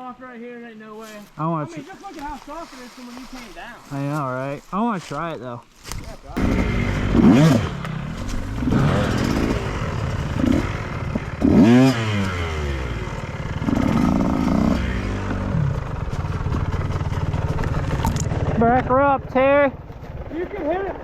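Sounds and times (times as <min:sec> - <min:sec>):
dirt bike engine revving: 0:06.4 - 0:21.0.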